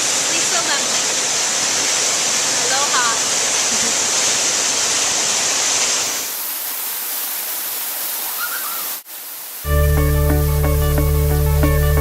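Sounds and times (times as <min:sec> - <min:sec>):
waterfall roaring: 0:00.0 - 0:09.7
plucked guitar music: 0:09.7 - 0:12.0.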